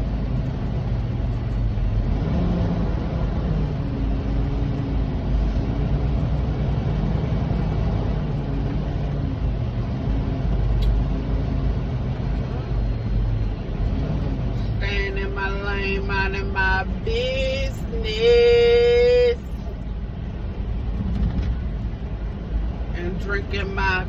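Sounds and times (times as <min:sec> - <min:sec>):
truck diesel engine rumble: 0:00.0 - 0:24.0.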